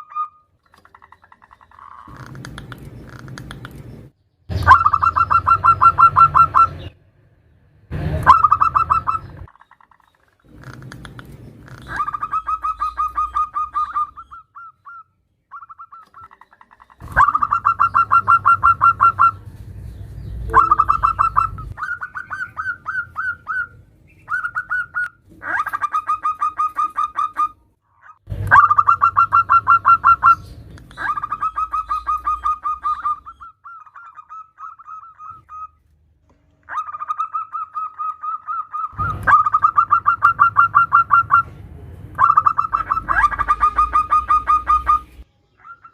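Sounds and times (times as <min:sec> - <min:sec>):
dove staccato cooing: 0:04.6 - 0:06.8, 0:08.2 - 0:09.5, 0:15.6 - 0:19.4, 0:20.5 - 0:27.5, 0:28.5 - 0:35.7, 0:36.7 - 0:41.5, 0:42.2 - 0:45.2.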